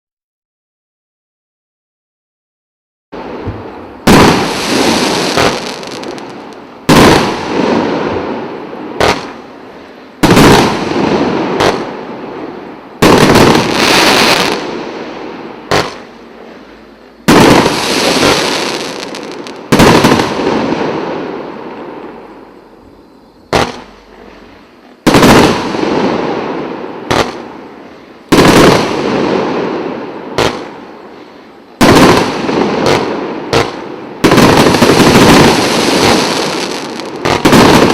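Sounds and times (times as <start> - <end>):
firework cake bangs: 6.9 - 8.2, 10.2 - 12.0, 15.7 - 16.1, 23.5 - 23.9, 31.8 - 37.9.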